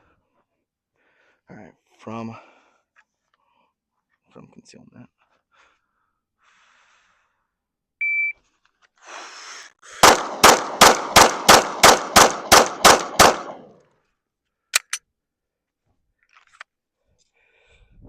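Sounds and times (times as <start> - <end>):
shot timer beep: 8.0 - 8.4
rapid pistol shots: 10.0 - 13.8.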